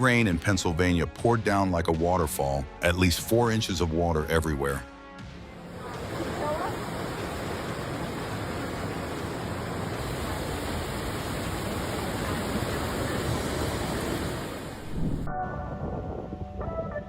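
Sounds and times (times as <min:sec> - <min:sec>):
torrential rain pouring: 0:05.6 - 0:15.3.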